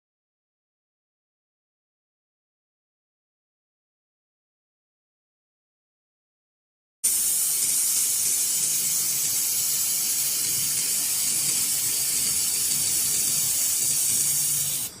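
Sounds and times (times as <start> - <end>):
laser welder hissing: 7.0 - 15.0.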